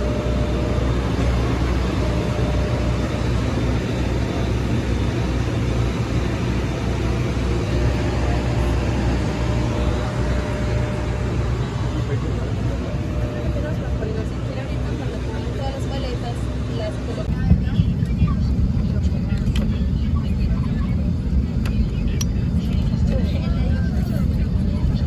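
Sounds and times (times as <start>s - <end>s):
aircraft cabin hum and air rush: 0.0s - 25.0s.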